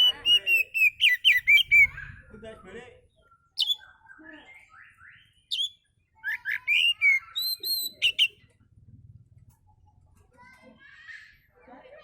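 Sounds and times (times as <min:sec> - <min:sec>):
songbird chirping and whistling: 0:00.0 - 0:02.1, 0:03.2 - 0:08.4.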